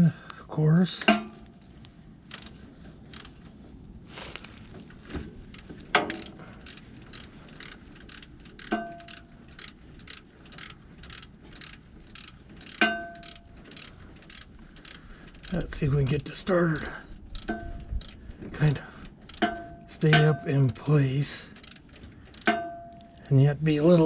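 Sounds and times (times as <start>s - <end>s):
hand ratchet clicking: 1.2s - 3.5s, 4.4s - 23.4s
metal tool clinks: 12.8s - 13.5s.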